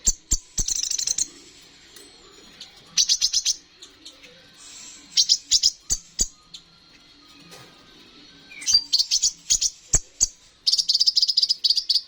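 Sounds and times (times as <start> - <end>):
bird twittering: 0.0 - 1.3, 2.6 - 6.7, 8.5 - 12.0.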